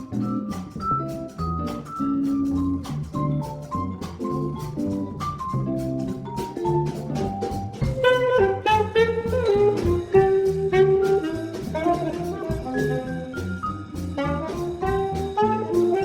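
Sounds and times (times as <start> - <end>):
jazz combo playing swing: 0.0 - 16.0
horn melody: 7.8 - 16.0.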